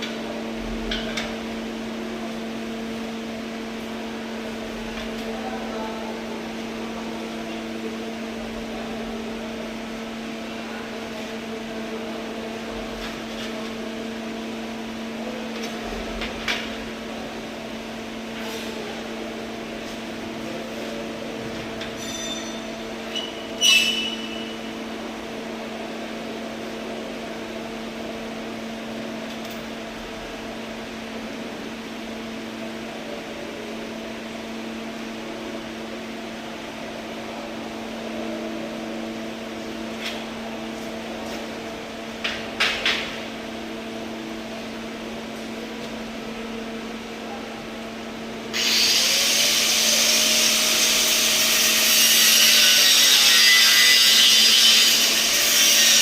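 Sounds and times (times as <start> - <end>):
ringing metal clank: 22.0 - 22.7
welding machine humming: 48.5 - 56.0.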